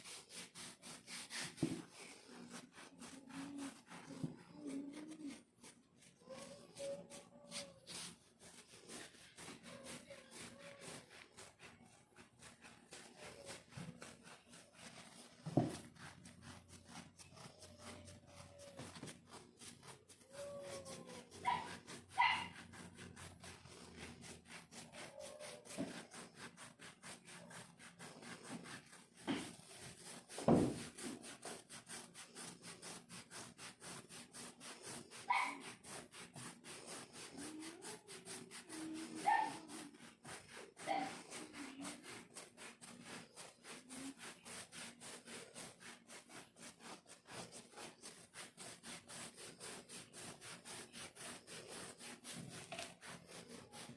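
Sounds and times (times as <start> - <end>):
scratching dry skin: 0.0 - 53.9.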